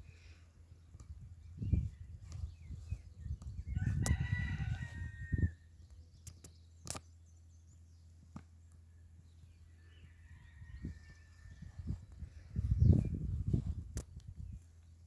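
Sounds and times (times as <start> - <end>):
rooster crowing: 3.7 - 5.6, 9.8 - 11.9
sharp click: 6.2 - 7.1.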